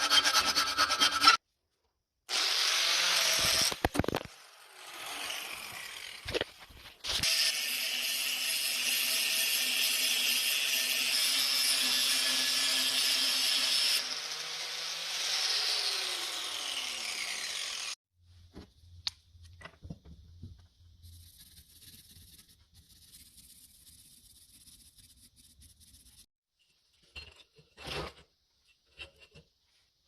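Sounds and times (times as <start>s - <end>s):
power tool winding down: 14.0s - 18.0s.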